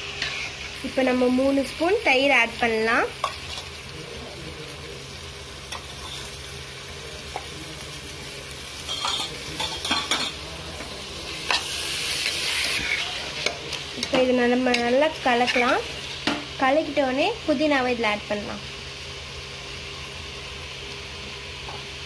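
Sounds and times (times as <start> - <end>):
curry sizzling in a pot: 0.0 - 22.0.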